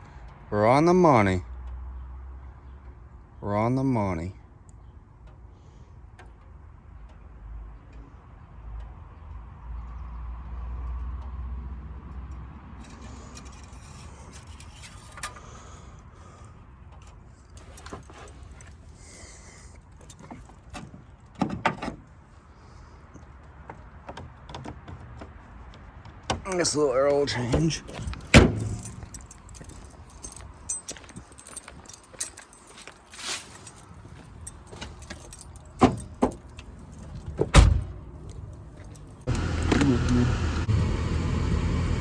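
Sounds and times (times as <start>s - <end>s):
small objects clinking and rattling: 12.8s - 15.3s, 27.8s - 33.9s
short clatter: 12.8s - 15.5s.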